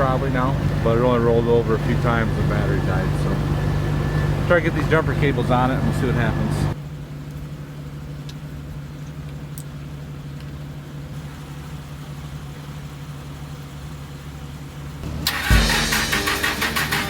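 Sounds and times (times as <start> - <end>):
vehicle engine idling: 0.0 - 17.0
guitar music: 15.0 - 17.0.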